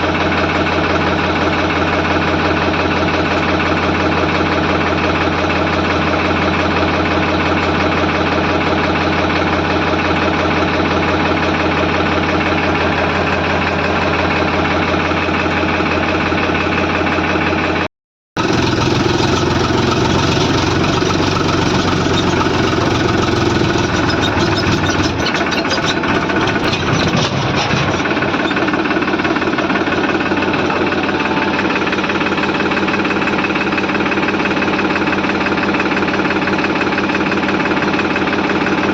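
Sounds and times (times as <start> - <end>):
heavy diesel engine running: 0.0 - 38.9
machinery clattering: 18.4 - 33.6.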